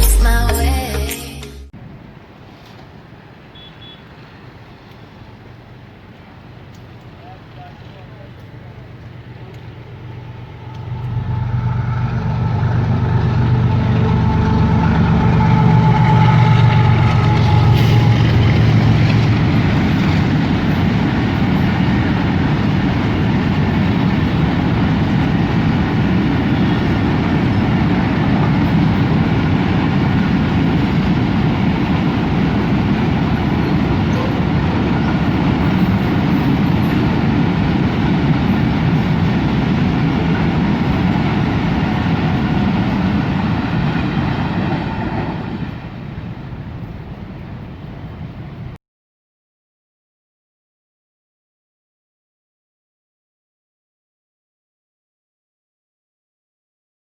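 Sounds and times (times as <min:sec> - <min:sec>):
diesel locomotive engine drone: 0:00.0 - 0:48.8
tank wagons rumbling on rails: 0:04.3 - 0:48.6.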